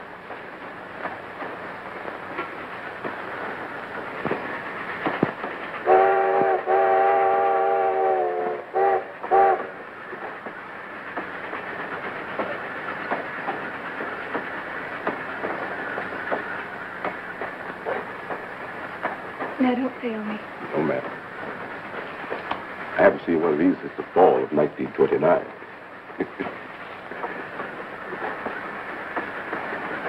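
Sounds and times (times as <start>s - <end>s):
train wheels clickety-clack: 0.0s - 30.0s
train whistle blasts: 5.8s - 9.7s.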